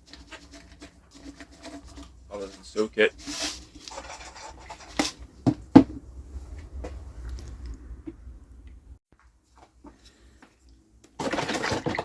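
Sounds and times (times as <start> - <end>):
hard objects knocking and clunking: 3.8 - 6.0
low handling rumble: 5.2 - 9.0.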